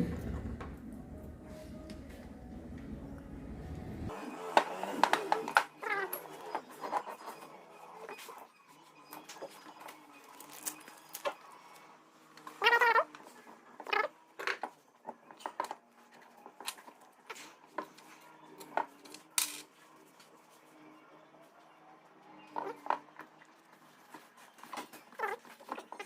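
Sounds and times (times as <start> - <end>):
faint steady hum: 0.0 - 4.1.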